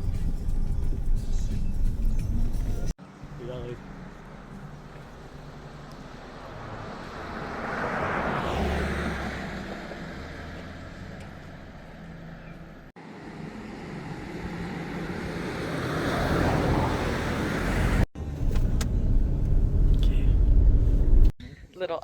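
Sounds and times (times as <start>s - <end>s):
road vehicles passing: 0.0s - 21.3s
heavy low rumble: 17.9s - 21.4s.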